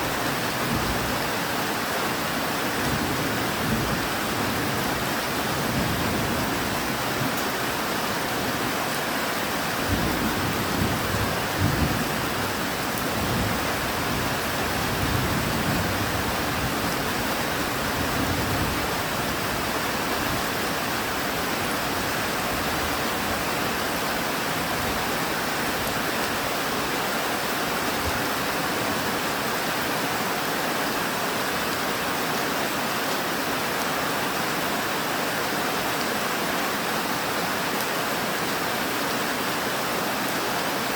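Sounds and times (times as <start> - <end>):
steady rain falling: 0.0 - 40.9
low rumbles of thunder: 9.8 - 16.8.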